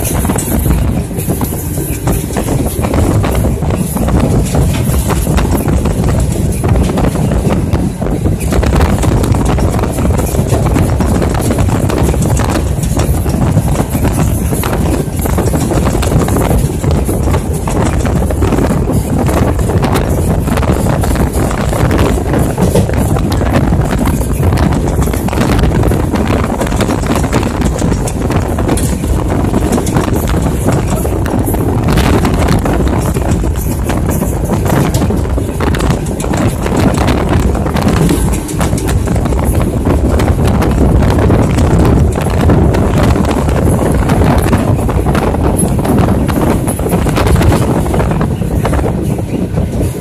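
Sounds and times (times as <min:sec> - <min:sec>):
train low rumble: 0:00.0 - 0:50.0
wheels clattering on rails: 0:00.0 - 0:50.0.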